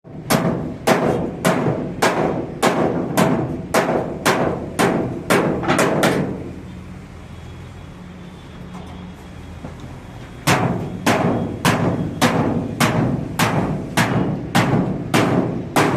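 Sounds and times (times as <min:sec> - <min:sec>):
hammer ringing on sheet steel: 0:00.3 - 0:06.4, 0:10.4 - 0:15.9.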